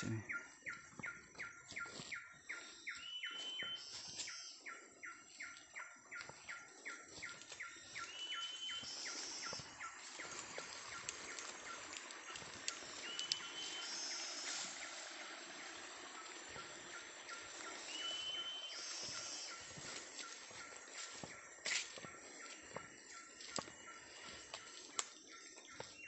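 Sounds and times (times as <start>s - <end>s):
bird whistling calls: 2.9s - 4.6s, 7.9s - 11.8s, 12.7s - 14.9s, 16.6s - 19.7s.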